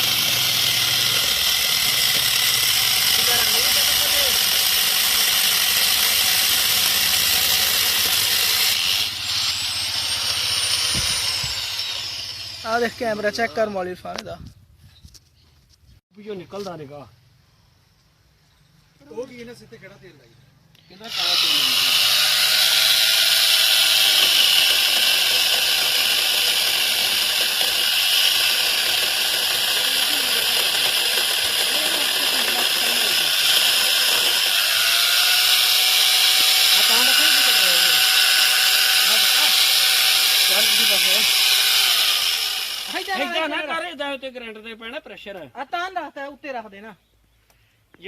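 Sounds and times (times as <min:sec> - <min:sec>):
angle grinder cutting wood: 0:00.0 - 0:13.6, 0:21.0 - 0:43.8
high motor whine: 0:08.0 - 0:13.2.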